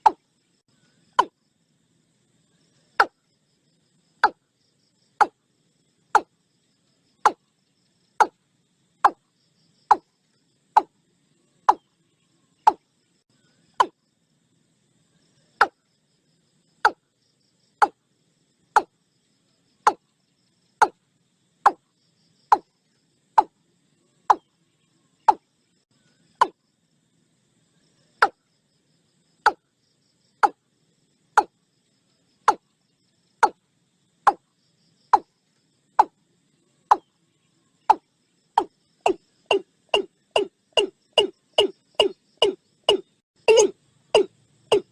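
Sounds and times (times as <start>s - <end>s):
watercock calling: 38.6s - 44.9s.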